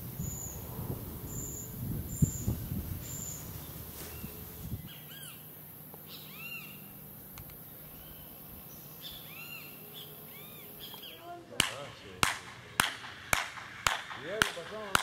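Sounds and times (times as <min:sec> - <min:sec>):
bird whistling: 0:01.3 - 0:05.4, 0:06.1 - 0:06.9, 0:07.9 - 0:11.3.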